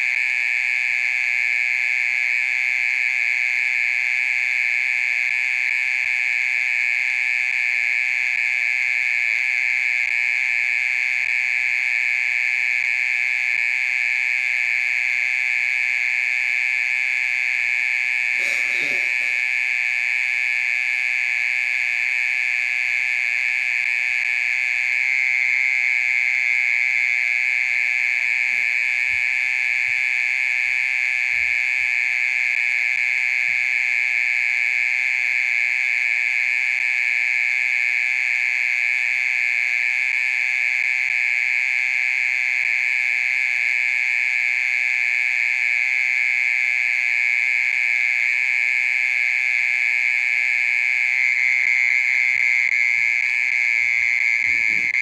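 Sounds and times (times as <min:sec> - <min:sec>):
cricket high-pitched trill: 0:00.0 - 0:55.0.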